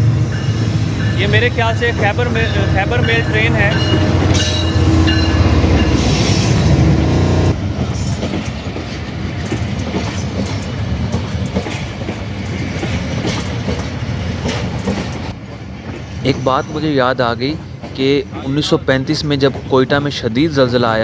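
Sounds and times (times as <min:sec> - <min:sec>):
diesel locomotive engine rumble: 0:00.0 - 0:21.0
wheels clicking over rail joints: 0:07.8 - 0:18.6.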